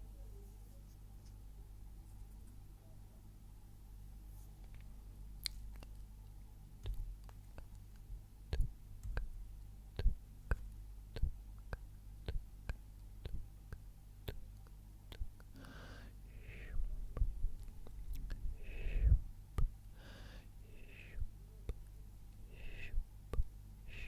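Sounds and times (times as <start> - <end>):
breathy whisper-like sound: 15.1 - 24.0.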